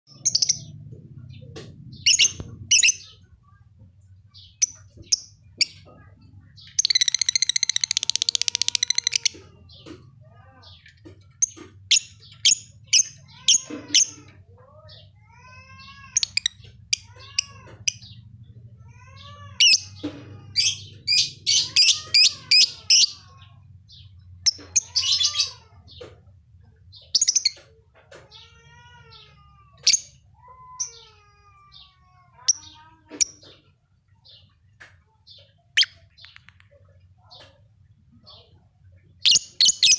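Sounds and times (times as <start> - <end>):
lovebird chirping and trilling: 1.9 - 3.3, 6.5 - 10.0, 11.4 - 14.2, 19.6 - 25.6, 35.3 - 36.7, 39.2 - 39.9.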